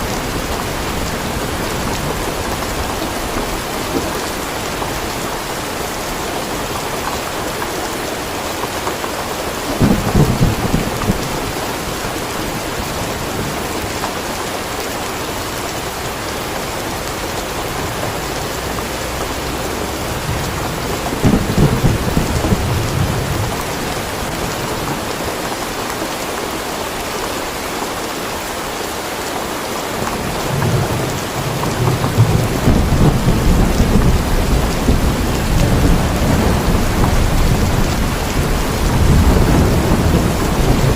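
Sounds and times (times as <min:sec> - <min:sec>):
steady rain falling: 0:00.0 - 0:40.9
thunder rumbling: 0:09.7 - 0:14.0, 0:15.7 - 0:25.3, 0:30.0 - 0:40.9.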